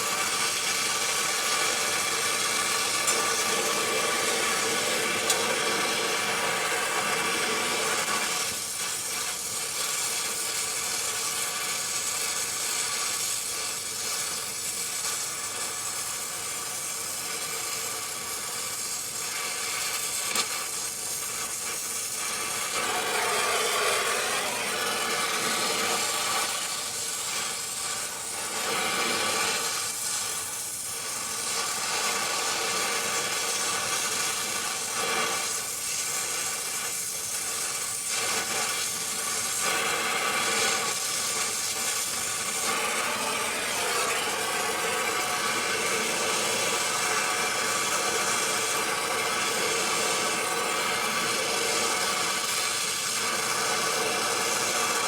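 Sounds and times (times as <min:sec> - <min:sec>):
machine running with hum: 0:22.6 - 0:27.2, 0:42.0 - 0:49.8.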